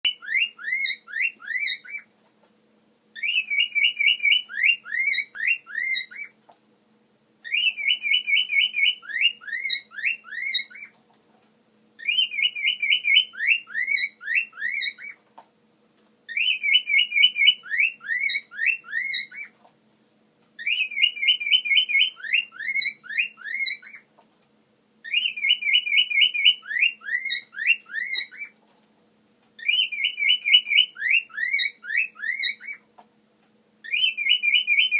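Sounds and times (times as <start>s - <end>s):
cockatiel whistling a tune: 0.1s - 2.1s, 3.2s - 6.4s, 7.4s - 10.9s, 12.0s - 15.2s, 16.3s - 19.5s, 20.6s - 24.0s, 25.0s - 28.5s, 29.6s - 32.8s, 33.8s - 34.9s.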